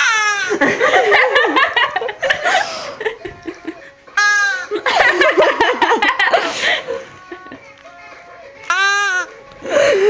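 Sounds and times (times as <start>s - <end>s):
person laughing: 0.3s - 7.6s.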